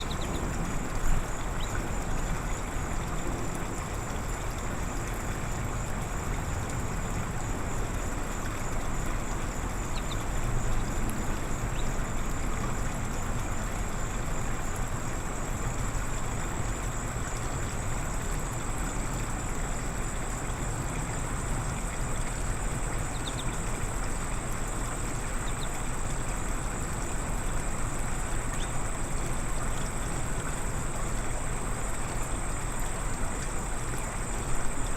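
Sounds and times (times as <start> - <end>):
birds chirping: 0.0 - 0.4.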